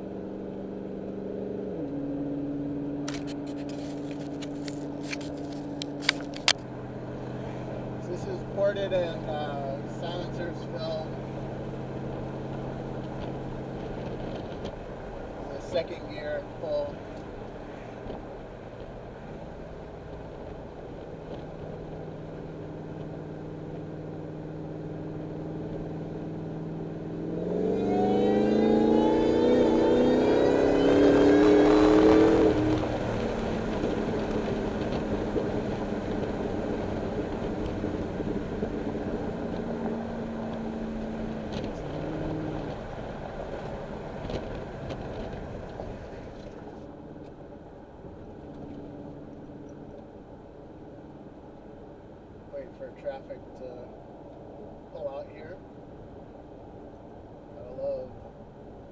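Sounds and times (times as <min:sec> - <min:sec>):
road noise: 0:00.0 - 0:58.9
supercharger whine: 0:00.0 - 0:58.9
truck engine revving: 0:23.1 - 0:46.8.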